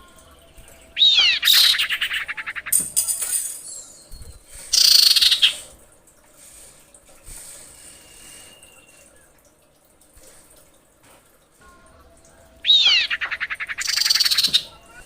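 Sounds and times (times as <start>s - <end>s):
bird buzzy chatter: 0.0s - 5.8s, 12.6s - 15.0s.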